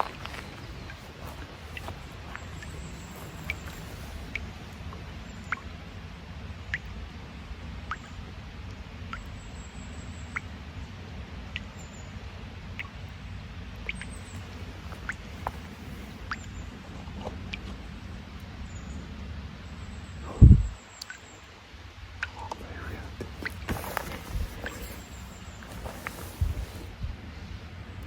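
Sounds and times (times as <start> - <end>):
water drops plinking into pool: 12.8 - 13.1.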